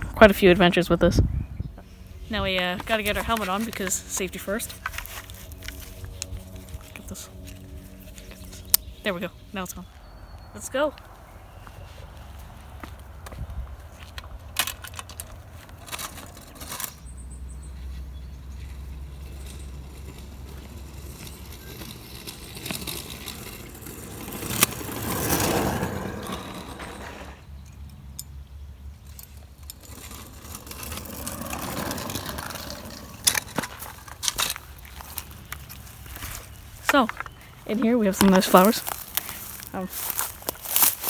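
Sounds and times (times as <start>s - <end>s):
scooter rolling along a path: 1.8s - 41.0s.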